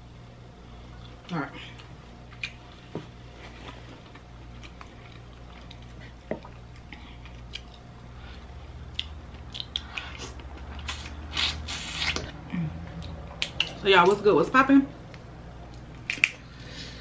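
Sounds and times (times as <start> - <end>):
chewing and wet mouth sounds: 3.7 - 8.1, 8.8 - 12.3.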